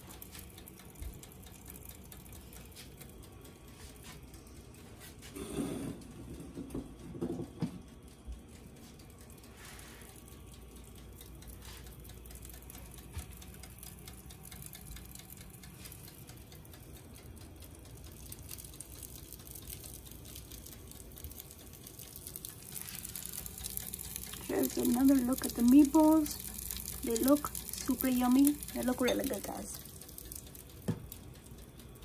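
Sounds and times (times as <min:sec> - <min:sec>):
meatballs sizzling in oil: 0:18.2 - 0:31.3.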